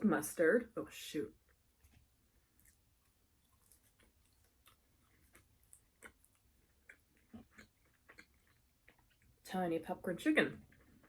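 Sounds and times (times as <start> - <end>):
chewing crunches: 1.8 - 9.4.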